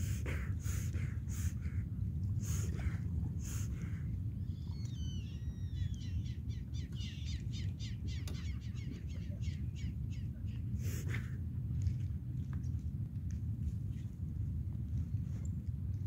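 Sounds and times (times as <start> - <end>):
steady low rumble: 0.0 - 16.0
birds gliding whistles: 3.4 - 10.4.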